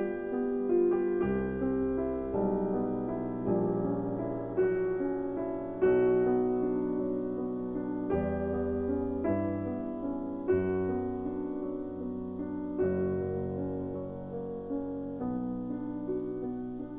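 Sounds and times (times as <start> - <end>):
gentle slow piano piece: 0.0 - 16.9.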